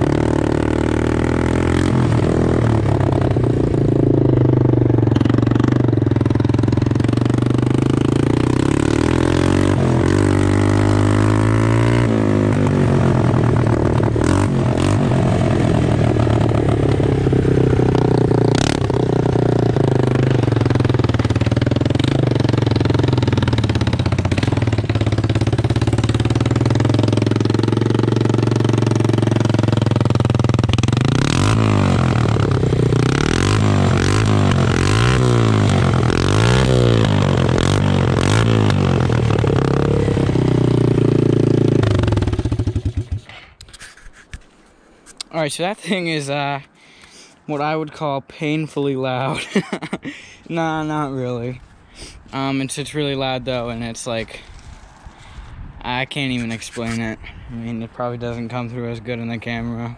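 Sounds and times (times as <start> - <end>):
loud atv engine revving: 0.0 - 43.4.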